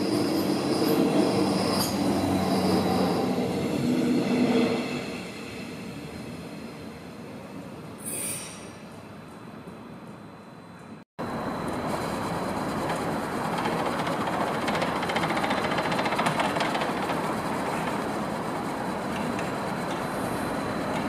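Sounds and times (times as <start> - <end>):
train wheels clicking over rails: 11.7 - 21.0.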